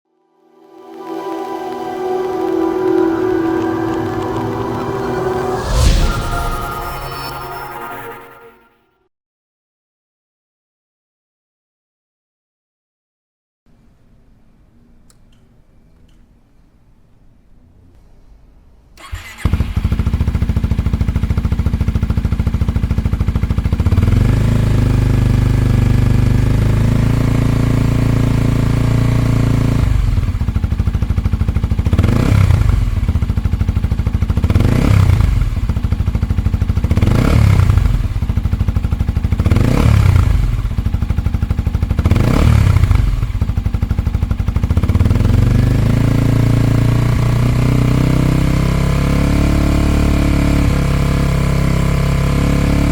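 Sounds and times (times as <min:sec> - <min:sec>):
motorcycle engine starting: 0:19.0 - 0:45.9.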